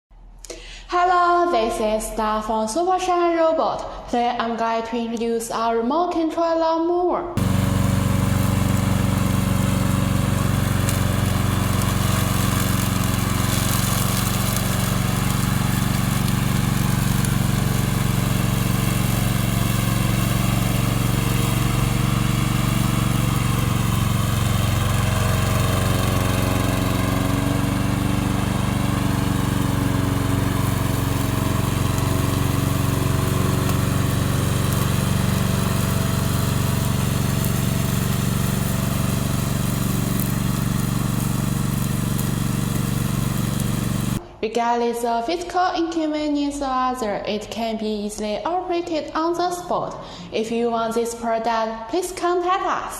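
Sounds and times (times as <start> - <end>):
lawn mower engine running: 7.4 - 44.2.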